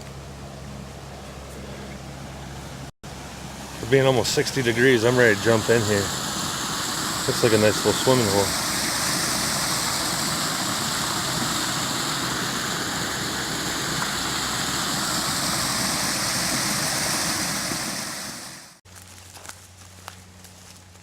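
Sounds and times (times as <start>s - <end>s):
creek water flowing: 3.1s - 18.8s.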